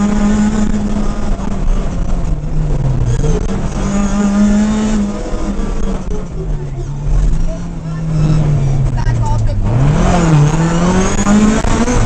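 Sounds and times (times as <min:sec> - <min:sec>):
rally car engine at high revs: 0:00.0 - 0:12.0.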